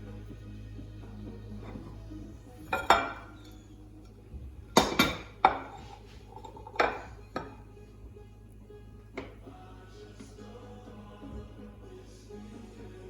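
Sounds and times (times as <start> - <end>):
dishes and cutlery clinking: 1.5 - 7.7, 9.2 - 9.5.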